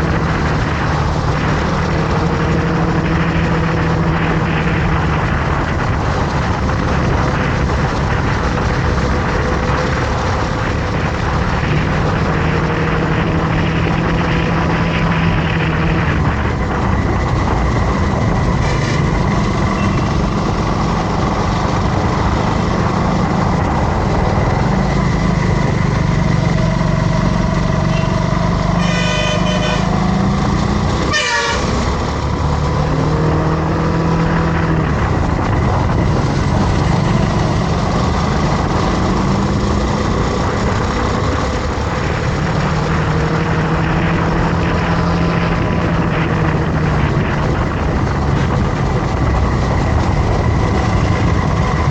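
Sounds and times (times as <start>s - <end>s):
motorcycle engine running: 0.0s - 51.9s
wind and road noise: 0.0s - 51.9s
vehicle horn toot: 27.9s - 30.0s, 31.1s - 31.8s.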